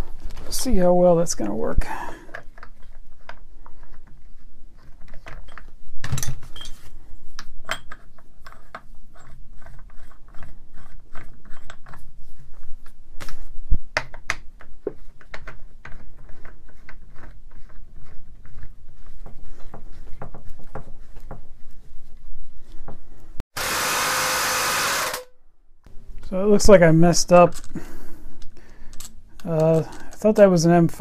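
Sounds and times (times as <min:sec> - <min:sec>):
small metal parts clicking and rattling: 0:27.5 - 0:27.8, 0:28.4 - 0:30.3.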